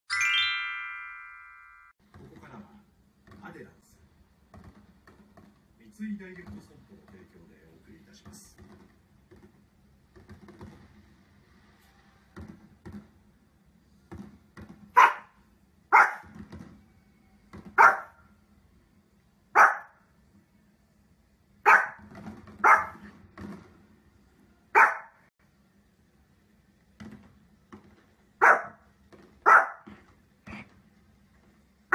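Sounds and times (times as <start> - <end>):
dog barking: 14.9 - 16.3, 17.8 - 18.2, 19.5 - 20.0, 21.6 - 22.0, 22.6 - 23.1, 24.7 - 25.2, 28.4 - 28.8, 29.4 - 29.9.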